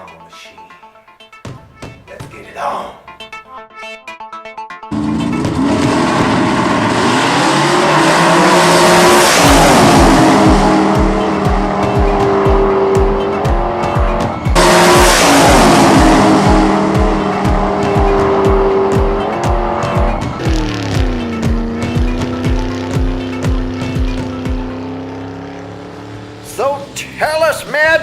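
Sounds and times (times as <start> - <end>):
music with thumping beat: 1.4 - 2.6, 9.4 - 24.9
race car engine revving: 4.9 - 27.8.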